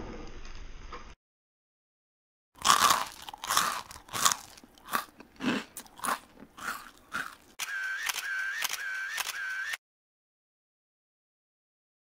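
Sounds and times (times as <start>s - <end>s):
crunchy chewing: 2.6s - 8.4s.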